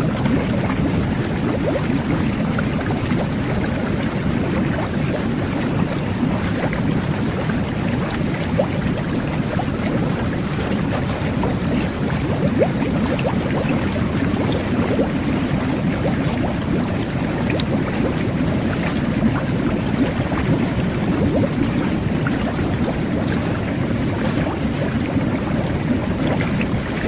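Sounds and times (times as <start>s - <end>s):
whirlpool bath jets bubbling: 0.0s - 27.0s.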